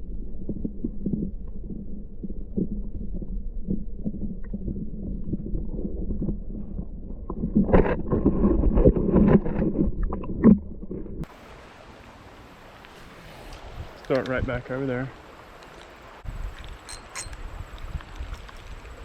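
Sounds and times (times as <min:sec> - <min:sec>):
muffled low rumble: 0:00.0 - 0:11.3
small knocks and scrapes: 0:07.3 - 0:11.3
creek water flowing: 0:11.2 - 0:19.0.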